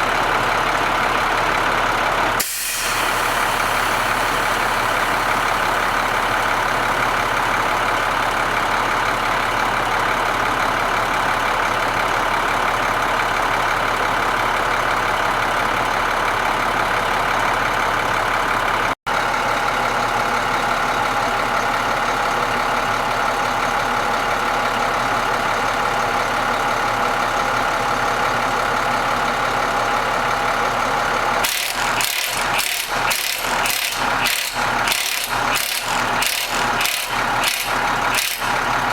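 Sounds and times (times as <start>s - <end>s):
engine running: 0.0s - 38.9s
rhythmic mechanical clatter: 31.4s - 38.9s.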